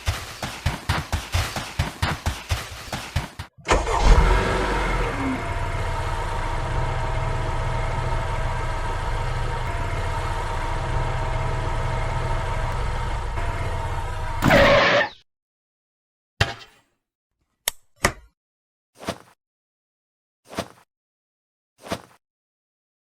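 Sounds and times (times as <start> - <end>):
motor humming: 3.7 - 14.6.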